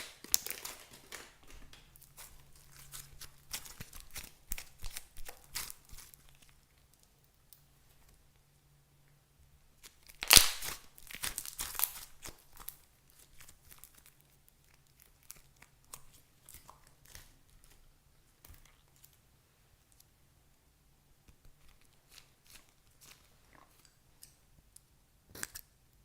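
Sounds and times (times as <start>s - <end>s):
material crinkling and tearing: 0.0s - 7.1s, 9.8s - 17.8s.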